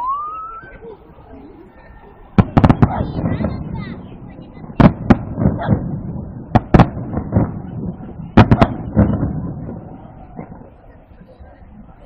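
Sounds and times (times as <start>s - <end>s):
fireworks bursting with bangs: 2.2s - 11.4s
rumbling echoes: 2.3s - 11.1s.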